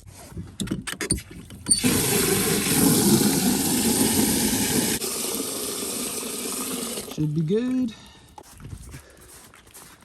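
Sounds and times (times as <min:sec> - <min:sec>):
water running into container: 0:01.7 - 0:07.3.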